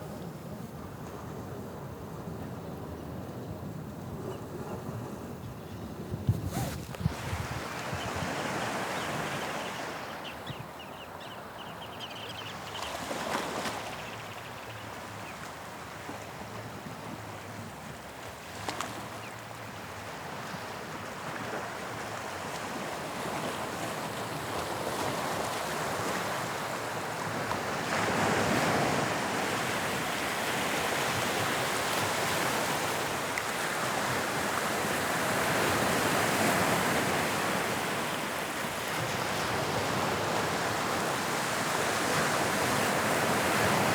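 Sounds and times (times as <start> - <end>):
sea waves breaking on shore: 6.4 - 10.2, 20.3 - 43.9.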